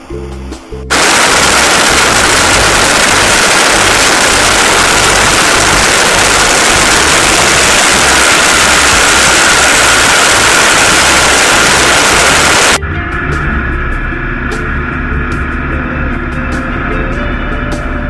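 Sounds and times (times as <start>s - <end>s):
aircraft engine and propeller: 0.9s - 12.8s.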